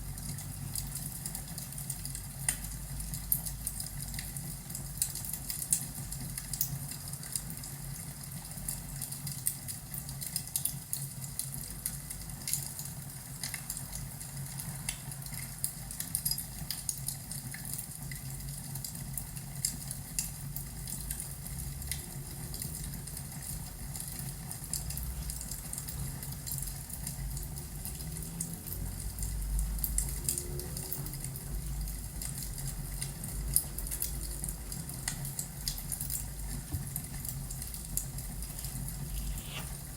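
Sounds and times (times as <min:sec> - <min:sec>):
wood fire crackling: 0:31.3 - 0:39.9.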